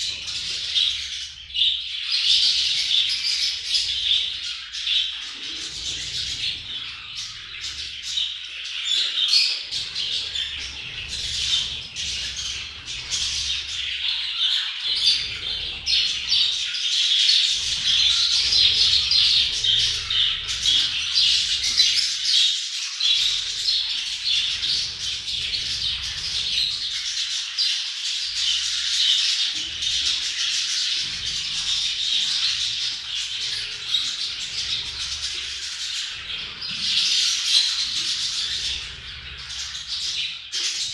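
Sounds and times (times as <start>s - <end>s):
budgerigars chattering: 0.0s - 40.9s.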